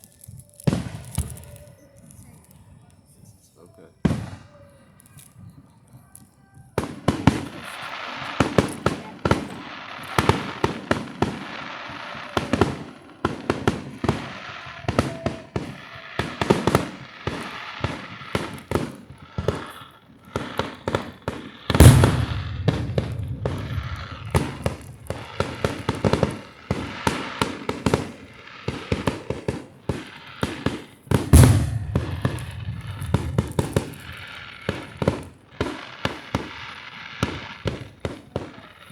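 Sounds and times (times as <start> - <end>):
fireworks bangs and crackles: 0.0 - 2.6, 3.9 - 38.9
heavy firework booms: 21.7 - 27.0, 31.1 - 35.3
low rumble: 21.8 - 25.4, 31.4 - 34.2.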